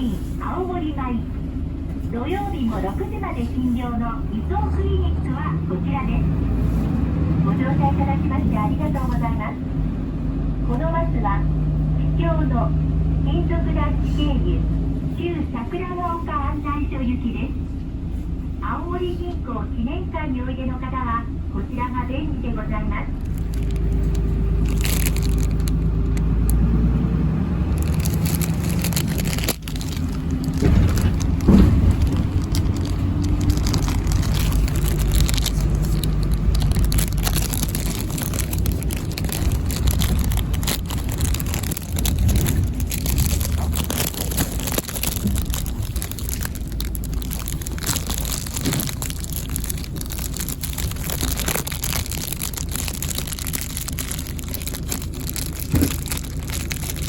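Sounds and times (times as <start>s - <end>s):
road noise: 0.0s - 57.0s
vehicle engine running: 0.0s - 57.0s.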